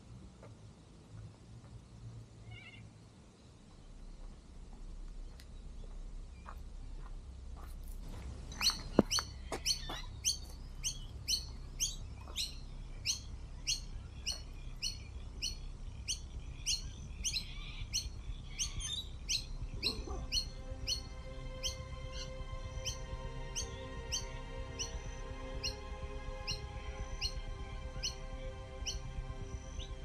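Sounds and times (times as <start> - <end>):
bird chirping: 8.5 - 30.0
music with held tones: 18.5 - 30.0.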